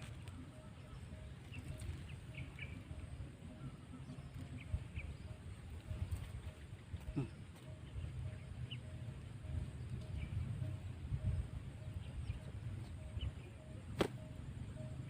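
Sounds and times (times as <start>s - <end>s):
faint pulsing note: 0.0s - 15.0s
steady low rumble: 0.0s - 15.0s.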